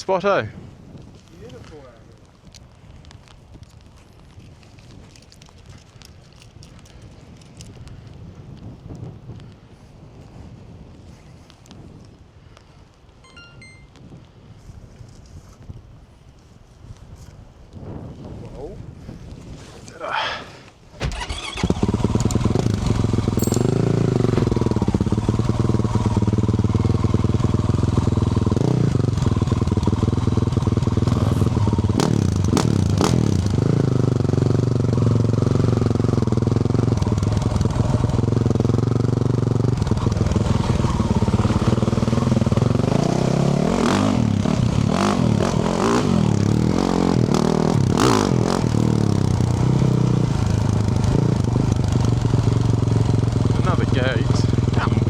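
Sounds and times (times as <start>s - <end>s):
motorcycle engine revving: 21.0s - 55.0s.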